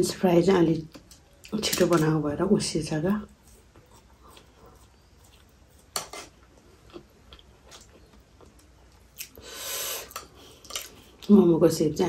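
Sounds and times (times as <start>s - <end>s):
wet chewing clicks and smacks: 6.8s - 9.4s
breath: 9.4s - 10.8s.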